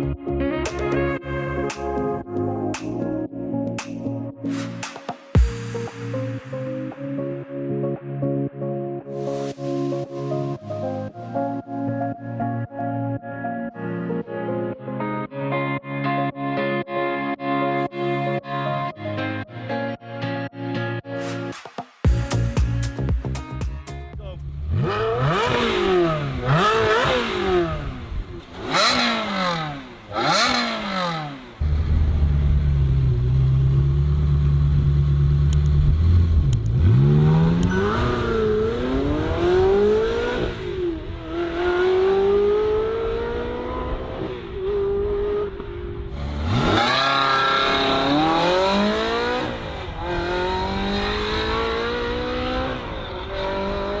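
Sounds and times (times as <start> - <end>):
sports car engine revving: 24.4 - 54.0.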